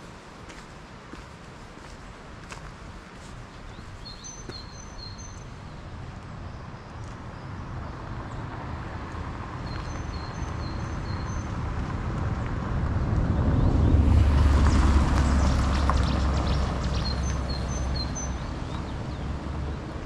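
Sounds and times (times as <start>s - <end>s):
low rumbling noise: 10.5s - 20.0s.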